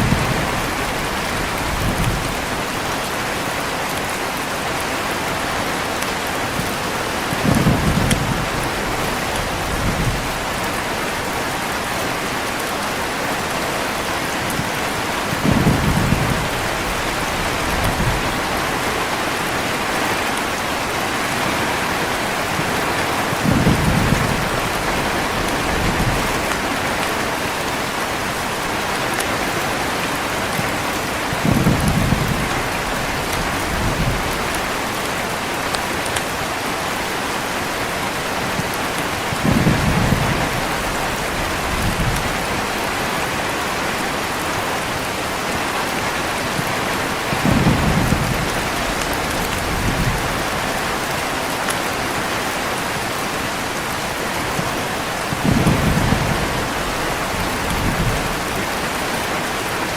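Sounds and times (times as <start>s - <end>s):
thunder rumbling: 0.0s - 3.4s, 6.6s - 12.3s, 14.5s - 28.8s, 30.4s - 35.6s, 38.5s - 43.3s, 46.3s - 51.3s, 52.9s - 59.0s
heavy rain falling: 0.0s - 59.9s.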